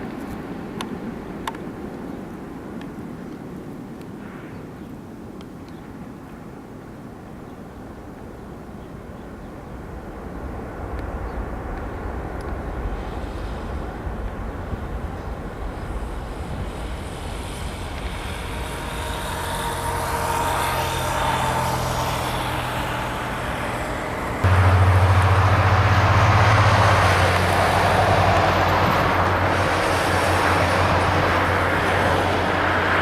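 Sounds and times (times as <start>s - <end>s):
jet engines roaring: 9.8s - 33.0s.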